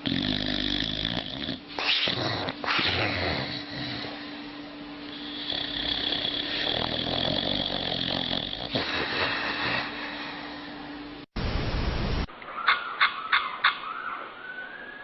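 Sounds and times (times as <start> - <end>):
dog snoring: 0.0 - 10.5.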